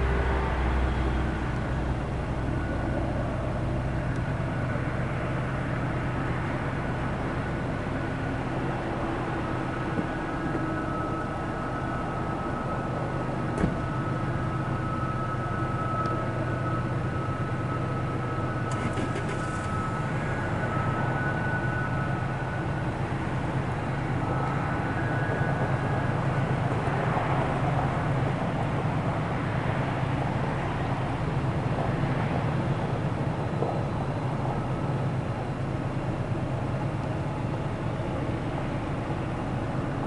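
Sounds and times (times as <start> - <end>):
diesel locomotive drone: 0.0 - 40.0
faint high whine: 0.0 - 40.0.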